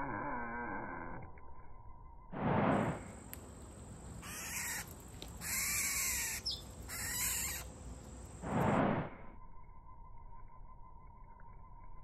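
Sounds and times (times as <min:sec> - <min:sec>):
loud whoosh: 0:02.3 - 0:03.1, 0:08.4 - 0:09.2
birds giving harsh rasping calls: 0:04.2 - 0:07.7.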